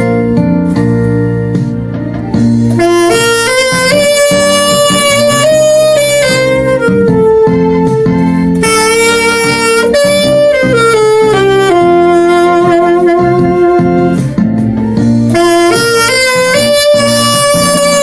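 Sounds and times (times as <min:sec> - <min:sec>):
alto saxophone melody: 0:00.0 - 0:18.0
keyboard accompaniment: 0:00.0 - 0:18.0.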